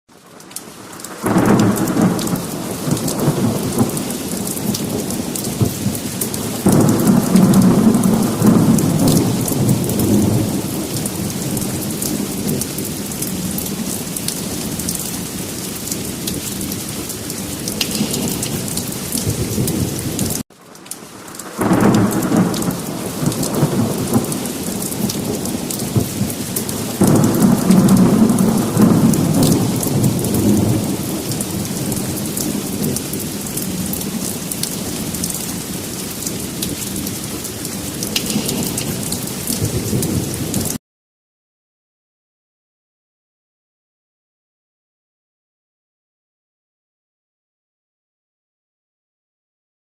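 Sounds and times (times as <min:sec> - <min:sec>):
heavy rain: 0:00.1 - 0:40.8
thunder rumbling: 0:01.1 - 0:20.4, 0:21.4 - 0:40.8.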